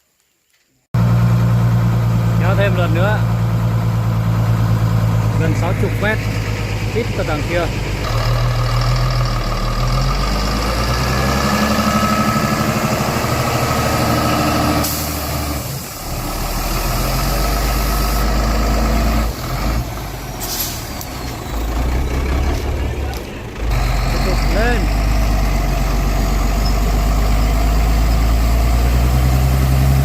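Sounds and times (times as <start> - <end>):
diesel truck engine running: 1.0 - 30.0
short sharp air hiss: 14.8 - 15.2, 20.4 - 21.0
air hissing: 20.4 - 21.0.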